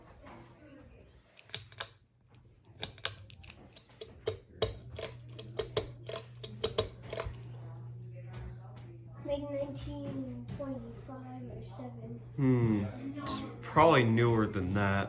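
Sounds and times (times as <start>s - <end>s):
ceiling fan motor humming: 2.5s - 15.0s
sharp clicks and taps: 2.8s - 7.4s.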